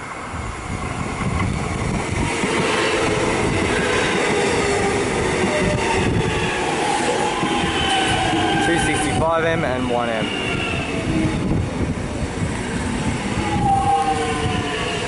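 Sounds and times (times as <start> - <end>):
electric train wheels rumbling: 0.0 - 15.0
train whine: 0.0 - 15.0.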